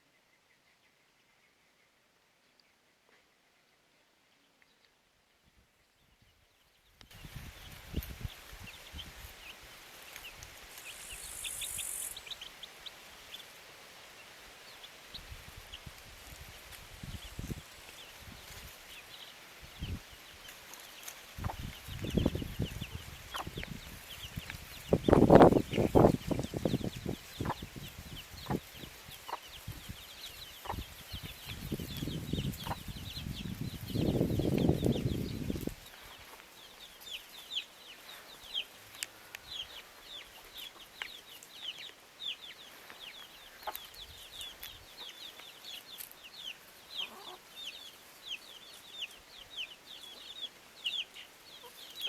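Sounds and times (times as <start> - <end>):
small birds chirping: 0.0 - 52.0
high-pitched insect-like buzz: 10.7 - 12.3
rapid high-pitched chirps: 10.8 - 12.3
chickens clucking: 14.8 - 52.0.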